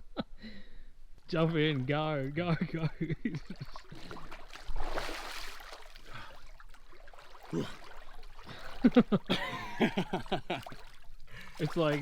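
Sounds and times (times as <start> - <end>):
person splashing into water: 3.4 - 9.2, 10.5 - 12.0
water washing about: 3.4 - 9.2, 9.8 - 12.0
wordless vocal sounds: 7.5 - 7.9.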